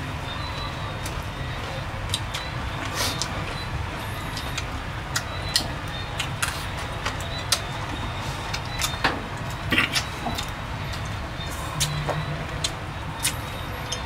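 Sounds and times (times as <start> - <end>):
chewing crunches and lip smacking: 4.3 - 14.0.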